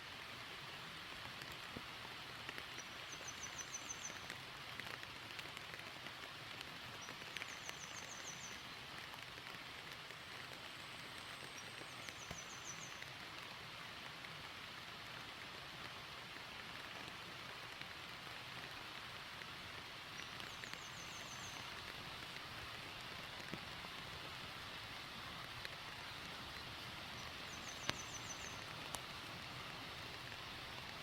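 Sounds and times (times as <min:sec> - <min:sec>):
rain pattering: 0:00.0 - 0:31.0
water drips: 0:01.2 - 0:13.5, 0:25.4 - 0:31.0.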